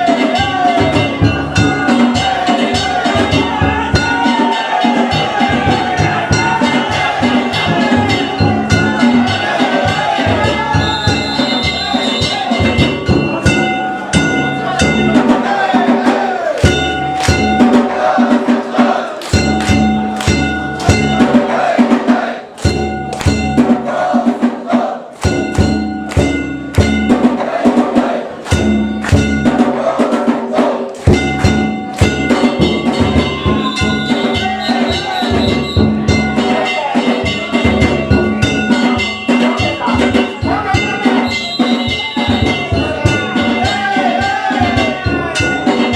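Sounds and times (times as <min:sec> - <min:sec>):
metal hand gongs ringing: 0:00.0 - 0:15.5, 0:16.6 - 0:17.8, 0:19.3 - 0:21.4, 0:22.6 - 0:23.8, 0:25.2 - 0:27.3, 0:28.5 - 0:29.6, 0:31.1 - 0:44.0
taiko drum beating: 0:00.0 - 0:45.9.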